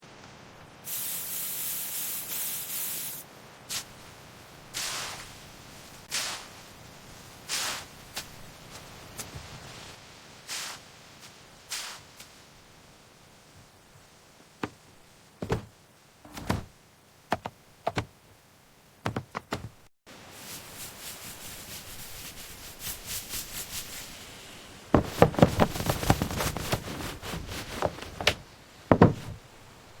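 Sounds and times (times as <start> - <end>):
sharp knocks and thuds: 14.6 - 15.7, 16.3 - 18.1, 19.0 - 19.9, 25.0 - 29.5
even taps: 15.4 - 15.7, 17.3 - 18.1, 19.1 - 19.8, 27.8 - 29.4.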